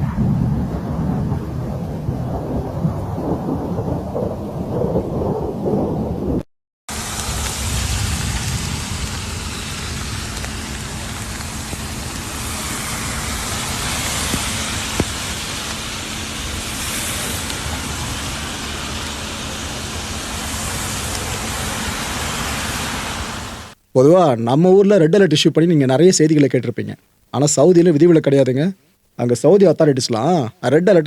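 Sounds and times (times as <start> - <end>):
heavy rain hissing: 6.9 - 23.8
road traffic rumbling: 6.9 - 23.8.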